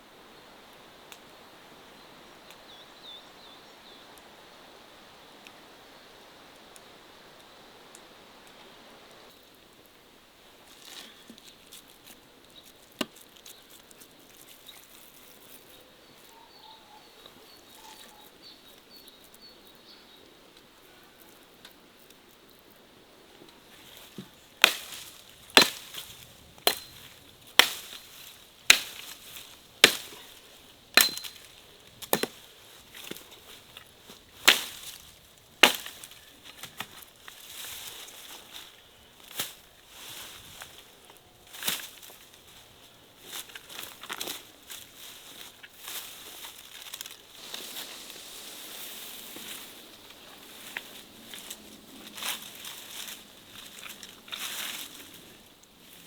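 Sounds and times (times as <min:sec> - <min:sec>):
blade chopping: 0:25.6 - 0:26.0, 0:26.6 - 0:28.0, 0:28.7 - 0:29.2, 0:29.8 - 0:30.4, 0:31.0 - 0:31.5, 0:35.6 - 0:36.0.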